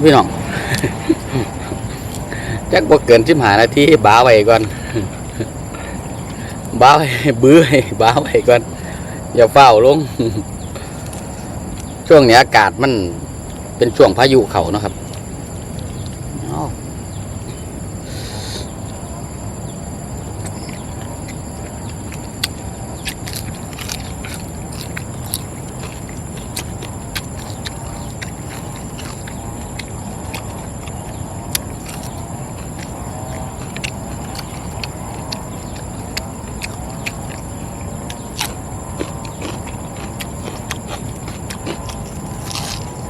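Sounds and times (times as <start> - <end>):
low rumble and hiss: 0.0 - 43.0
sharp crackles and pops: 20.2 - 43.0.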